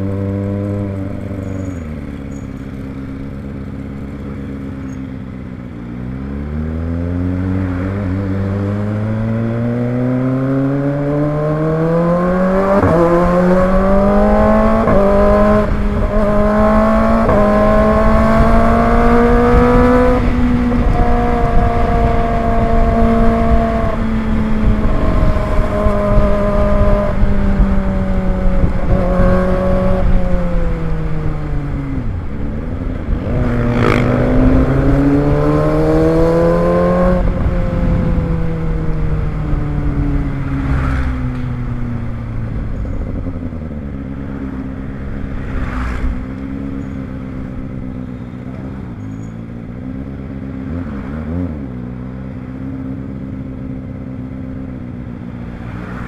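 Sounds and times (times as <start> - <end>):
motorcycle engine revving: 0.0 - 56.0
wind over microphone: 10.8 - 44.2.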